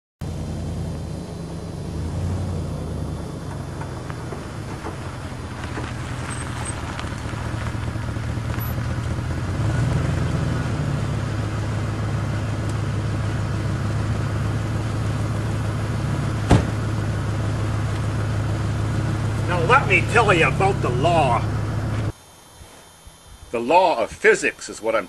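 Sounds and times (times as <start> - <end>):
car engine idling: 0.2 - 22.2
car door slamming: 16.4 - 17.0.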